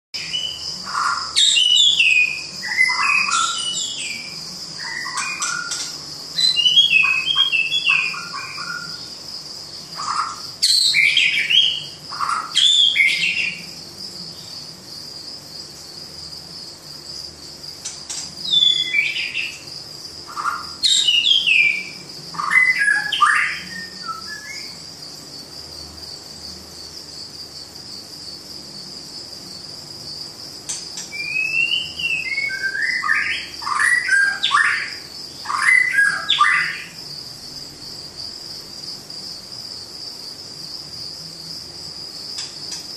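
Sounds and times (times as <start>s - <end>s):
birds whistling calls: 0.2s - 9.1s, 10.0s - 13.7s, 18.1s - 19.6s, 20.3s - 24.8s, 31.0s - 37.0s
insect drone: 0.2s - 42.9s.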